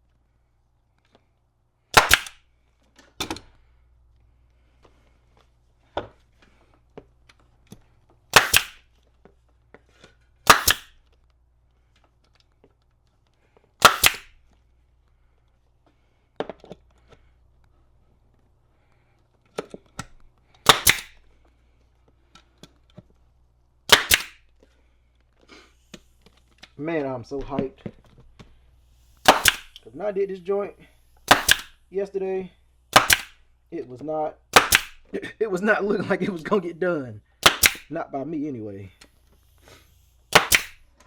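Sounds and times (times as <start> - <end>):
pneumatic staple gun firing: 1.9 - 2.4, 8.3 - 8.9, 10.4 - 11.1, 13.8 - 14.4, 20.0 - 21.3, 23.9 - 24.5, 28.4 - 29.9, 30.8 - 31.9, 32.9 - 33.5, 34.5 - 35.1, 37.4 - 37.9, 39.0 - 41.0.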